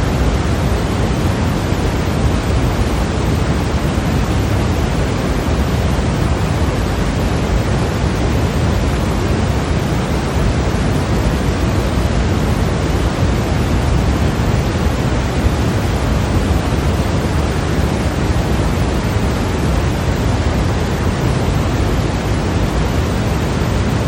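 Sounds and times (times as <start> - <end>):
white noise hiss: 0.0 - 24.0.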